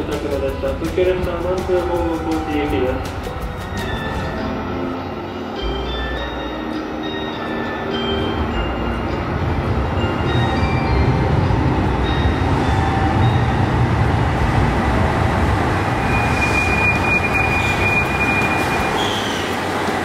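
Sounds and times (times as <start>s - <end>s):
train rumble: 0.0s - 20.0s
high-pitched squeal: 15.9s - 19.7s.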